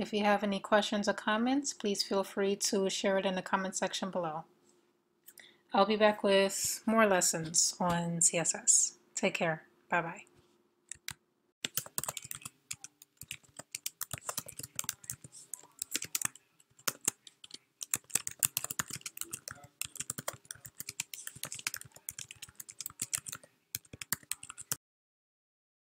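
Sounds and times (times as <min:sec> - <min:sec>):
keyboard typing: 0:10.9 - 0:24.8.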